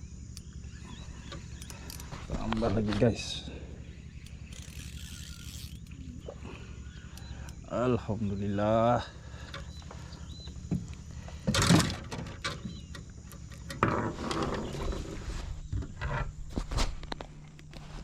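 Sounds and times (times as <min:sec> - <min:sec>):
knocks and clicks of gear: 0:00.3 - 0:07.7, 0:09.2 - 0:18.0.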